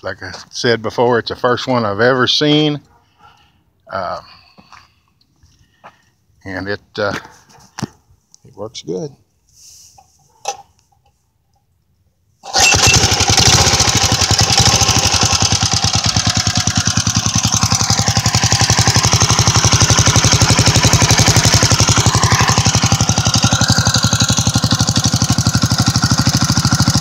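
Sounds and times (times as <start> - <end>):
motorbike engine running: 12.6 - 27.0.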